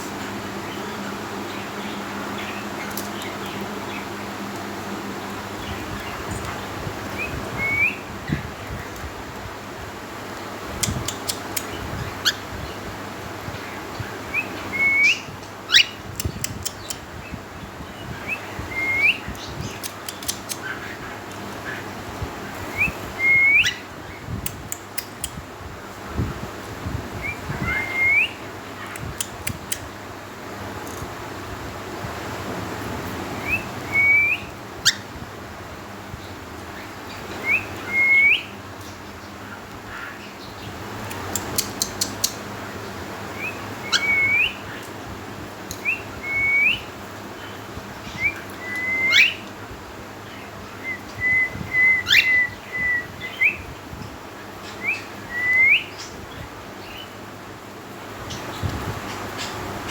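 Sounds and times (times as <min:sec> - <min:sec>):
cockatiel whistling: 0:37.5 - 0:38.5, 0:43.4 - 0:44.6.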